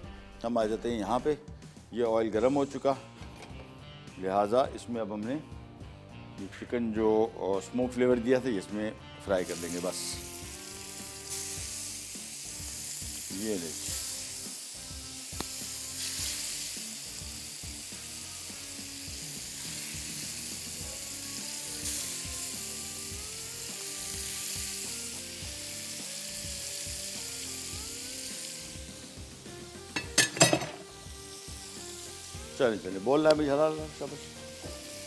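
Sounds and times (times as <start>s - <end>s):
soft background music: 0.0s - 35.0s
meat sizzling in hot oil: 9.3s - 35.0s.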